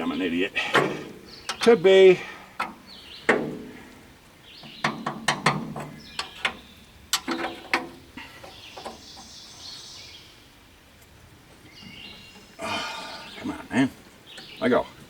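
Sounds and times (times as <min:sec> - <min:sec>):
faint hiss: 0:08.0 - 0:15.0.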